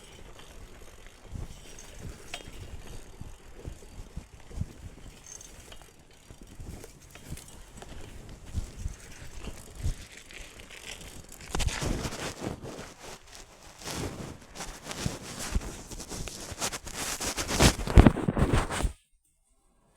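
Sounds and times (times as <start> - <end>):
bike knocks and rattles: 0.0 - 13.3
bike tyres crunching through leaves: 0.0 - 19.0.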